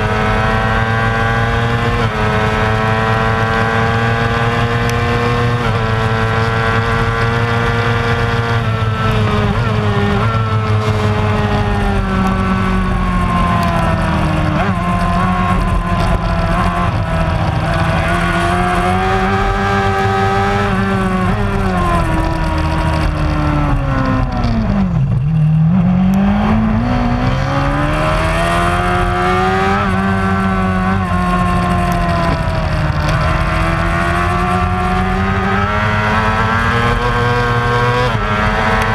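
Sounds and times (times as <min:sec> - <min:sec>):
racing motorcycle engine revving: 0:00.0 - 0:38.9.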